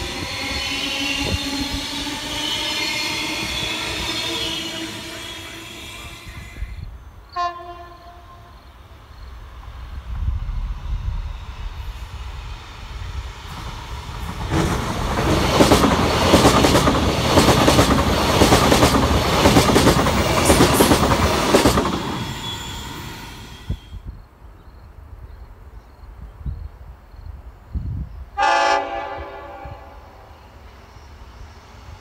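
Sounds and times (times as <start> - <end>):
train wheels clattering: 13.5 - 23.1.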